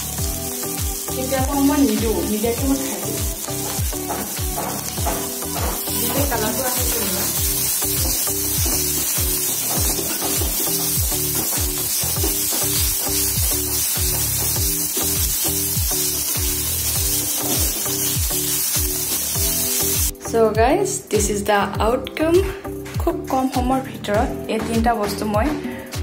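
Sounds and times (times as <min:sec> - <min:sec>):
vegetable sizzling in hot oil: 0:00.0 - 0:20.2
background music with deep beat: 0:00.0 - 0:21.4, 0:22.0 - 0:26.0
spatula stirring in pan: 0:03.5 - 0:20.0.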